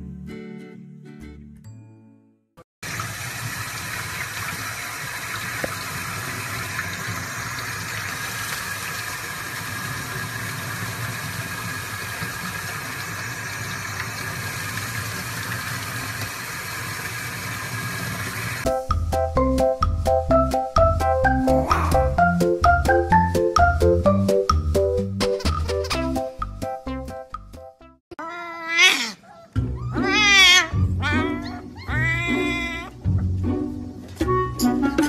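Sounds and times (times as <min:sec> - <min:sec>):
faucet water running: 0:02.8 - 0:18.7.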